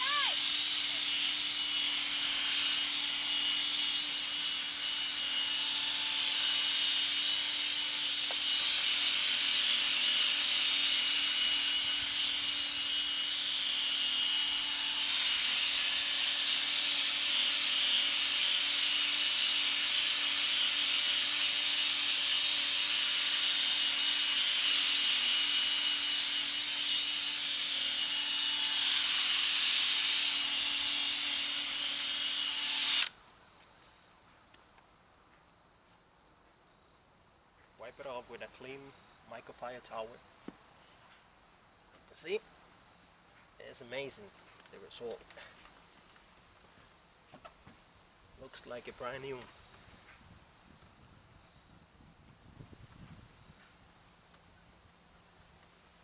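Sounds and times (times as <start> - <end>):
drill motor whine: 0.0 - 33.2.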